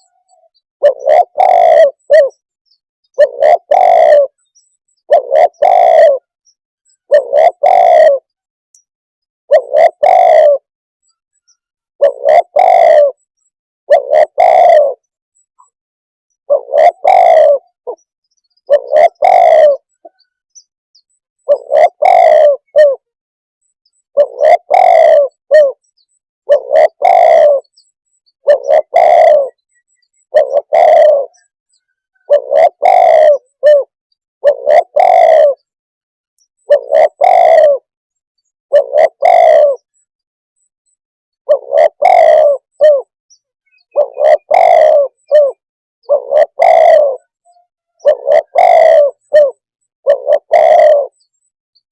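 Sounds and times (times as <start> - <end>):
dove cooing: 0.0 - 2.4, 3.1 - 8.4, 9.5 - 10.7, 12.0 - 13.3, 13.9 - 15.8, 16.4 - 20.4, 21.4 - 23.2, 24.1 - 25.8, 26.4 - 35.8, 36.6 - 37.9, 38.7 - 40.0, 41.4 - 43.1, 43.7 - 51.2.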